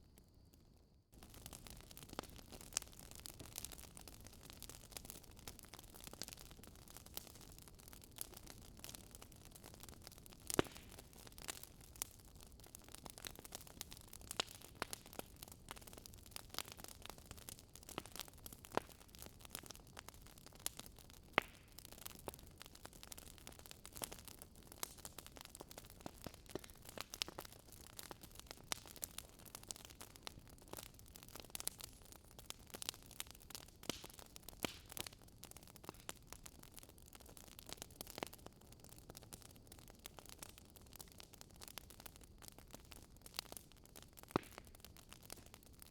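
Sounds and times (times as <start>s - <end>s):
wood fire crackling: 1.1s - 45.9s
sharp pops and snaps: 21.3s - 21.7s, 44.3s - 44.6s.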